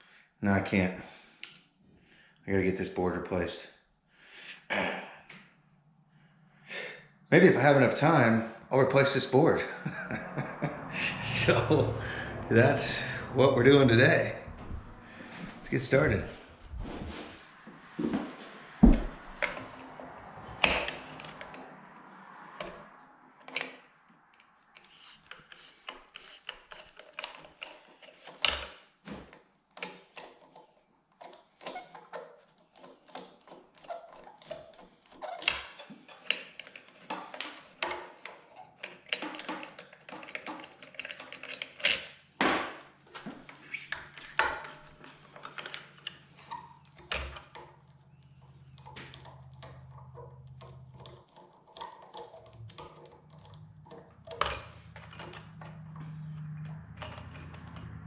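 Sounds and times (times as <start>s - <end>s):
clatter of hard objects handled: 24.8s - 56.2s.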